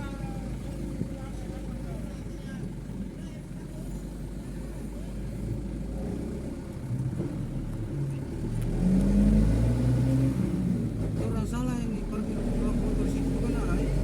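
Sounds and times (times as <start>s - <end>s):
truck diesel engine revving: 8.4s - 14.0s.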